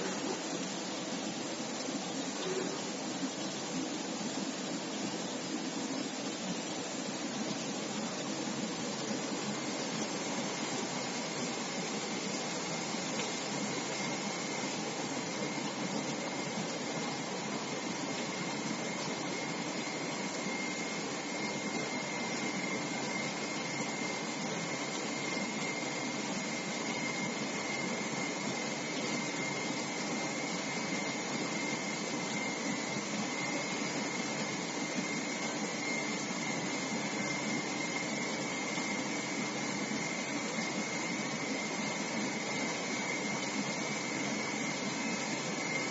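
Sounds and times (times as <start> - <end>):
faint high whine: 0.0 - 45.9.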